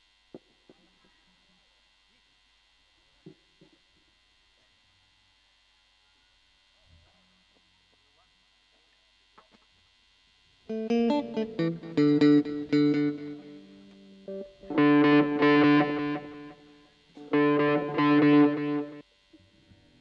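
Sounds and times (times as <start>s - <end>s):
distorted electric guitar: 10.7s - 19.0s.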